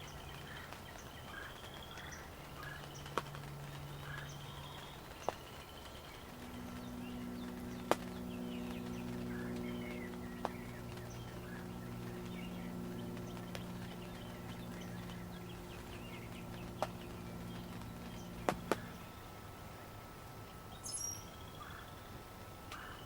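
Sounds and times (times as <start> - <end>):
steady low hum: 0.0 - 23.0
wild birds chirping: 0.0 - 23.0
sharp clicks: 15.8 - 19.0.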